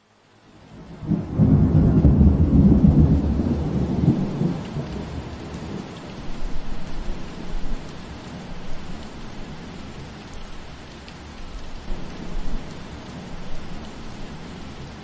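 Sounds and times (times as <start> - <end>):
steady rain: 0.0 - 15.0
thunder rumbling: 0.7 - 10.1.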